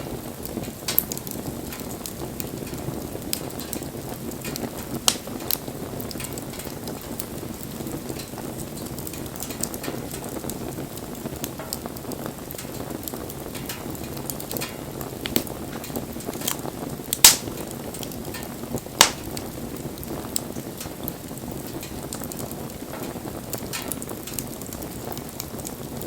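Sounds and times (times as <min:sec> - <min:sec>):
low rush of flame: 0:00.0 - 0:26.0
wood fire crackling: 0:00.0 - 0:26.0
sharp loud pop: 0:17.2 - 0:17.5.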